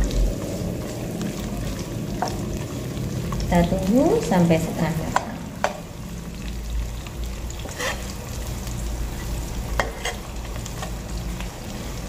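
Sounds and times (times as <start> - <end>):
shallots and garlic sizzling: 0.0 - 12.0
metal spatula scraping a pan: 7.6 - 8.2, 9.1 - 11.0.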